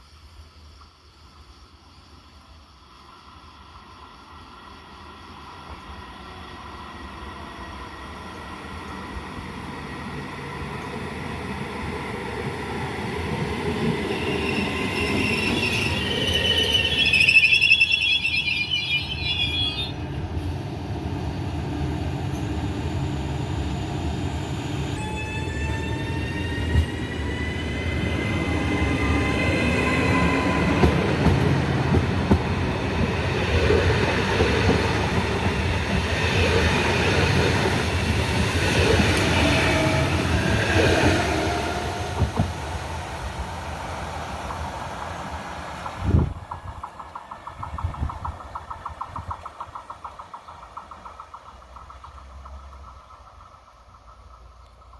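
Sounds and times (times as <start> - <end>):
train rumbling on track: 2.5 - 54.9
train wheels squealing: 12.5 - 20.6, 22.1 - 33.6, 34.2 - 42.4.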